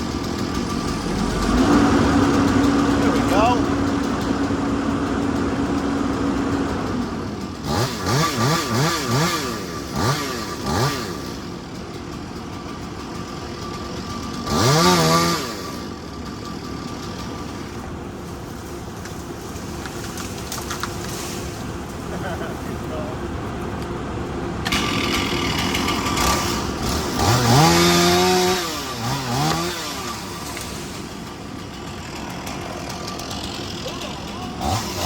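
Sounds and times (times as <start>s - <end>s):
steady machine hum: 0.0s - 7.7s
small engine revving: 0.0s - 17.9s, 24.6s - 35.0s.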